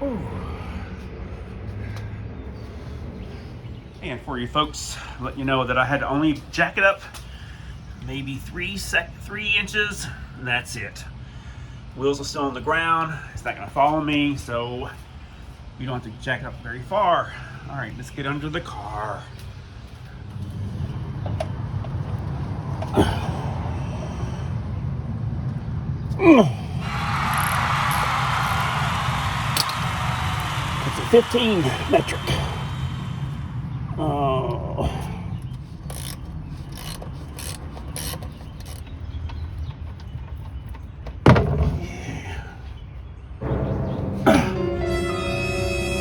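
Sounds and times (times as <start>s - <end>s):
man grunting with effort: 22.9s - 24.2s, 26.2s - 26.8s
ratchet wrench clicking: 27.3s - 28.6s, 35.8s - 38.9s
steady low rumble: 32.2s - 35.8s.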